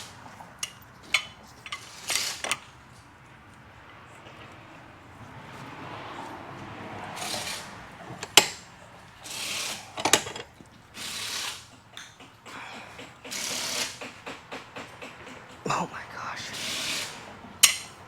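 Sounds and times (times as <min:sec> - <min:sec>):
rasping hissing strokes: 0:15.8 - 0:17.9.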